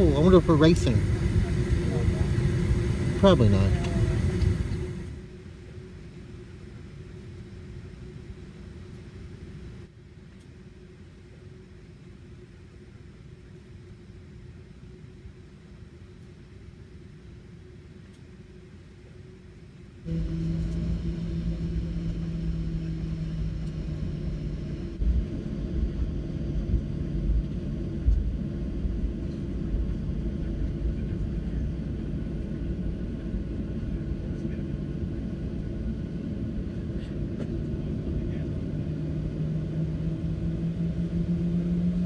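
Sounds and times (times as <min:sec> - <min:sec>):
aircraft jolts: 0:00.0 - 0:05.2
jet engine rumble in cabin: 0:00.0 - 0:42.0.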